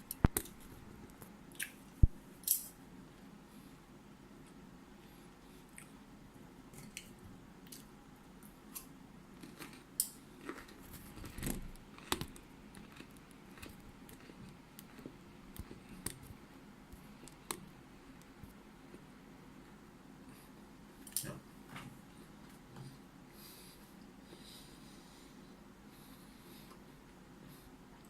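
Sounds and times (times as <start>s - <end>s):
person chewing crisp food: 8.6s - 16.4s.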